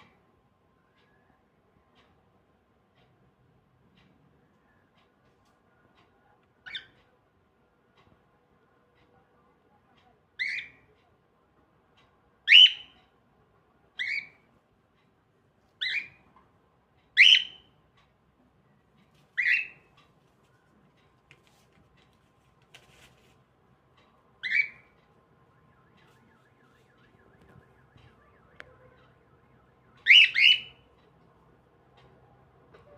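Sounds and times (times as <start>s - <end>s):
cockatiel calling: 12.5s - 12.9s, 14.0s - 14.4s, 15.8s - 16.2s, 17.2s - 17.7s, 19.4s - 19.8s, 24.4s - 24.9s, 30.0s - 30.8s.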